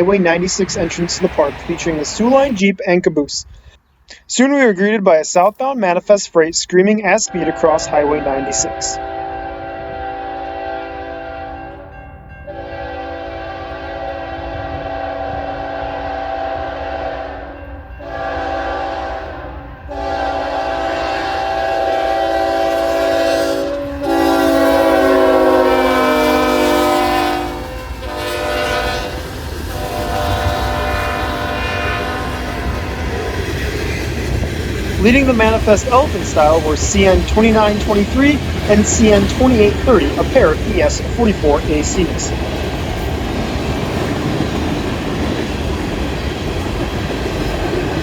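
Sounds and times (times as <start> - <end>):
train rumbling at speed: 0.0 - 3.3, 6.6 - 48.0
train air horn blasts: 7.3 - 11.9, 12.5 - 33.4.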